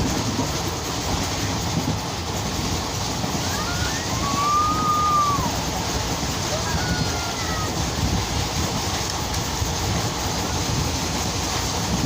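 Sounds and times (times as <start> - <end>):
train rumbling: 0.0 - 12.0
high whistling tone: 3.4 - 5.6.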